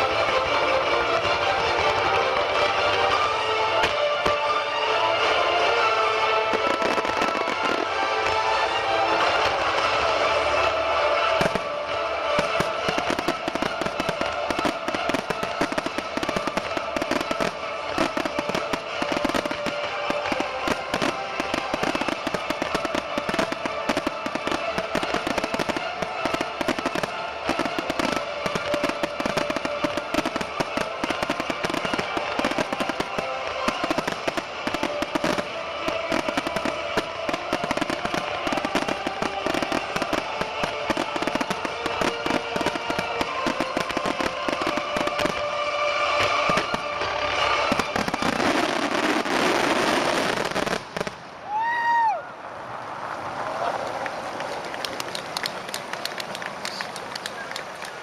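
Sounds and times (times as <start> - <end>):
fireworks popping and crackling: 0.0 - 52.2, 53.4 - 58.0.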